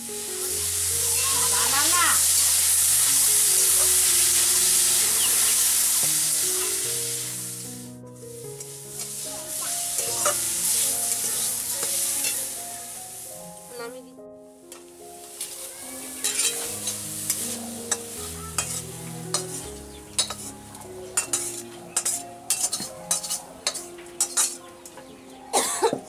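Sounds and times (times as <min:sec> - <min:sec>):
leaves sizzling in a pan: 0:00.0 - 0:25.5
soft background music: 0:00.0 - 0:26.0
metal spatula scraping a pan: 0:08.6 - 0:12.6, 0:16.2 - 0:24.7.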